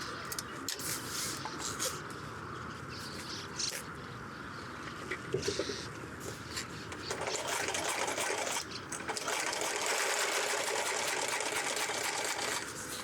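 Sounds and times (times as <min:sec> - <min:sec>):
sewing machine stitching: 0:07.0 - 0:13.0.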